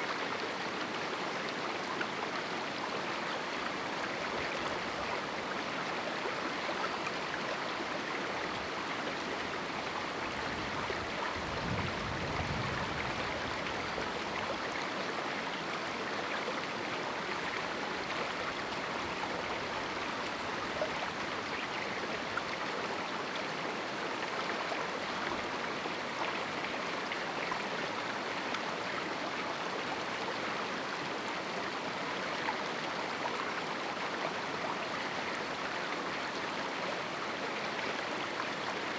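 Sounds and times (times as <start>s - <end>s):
low rumble of water: 10.4s - 14.6s.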